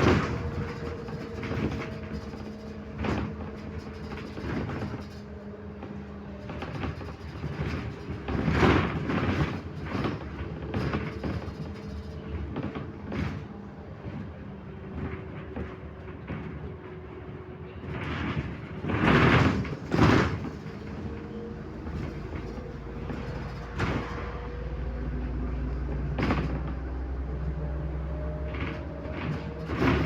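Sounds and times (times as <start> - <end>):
diesel engine drone: 12.2 - 30.0.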